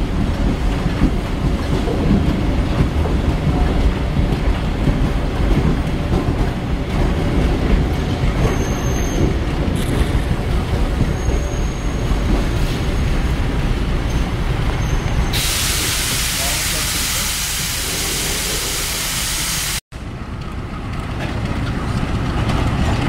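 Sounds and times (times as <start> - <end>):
train carriage rumbling on rails: 0.0 - 23.0
faint high wheel squeal: 8.4 - 9.4, 11.1 - 12.2, 14.1 - 15.4.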